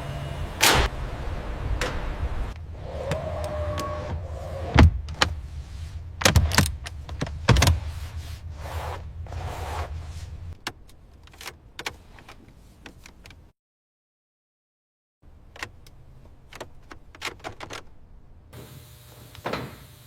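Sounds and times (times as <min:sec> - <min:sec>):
sharp clicks and knocks: 0:06.2 - 0:07.9.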